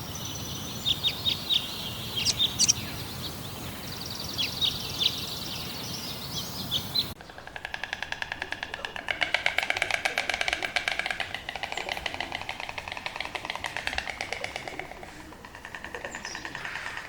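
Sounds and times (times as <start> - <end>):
bird chirping: 0.0 - 7.5
rapid repeated bird calls: 0.0 - 17.0.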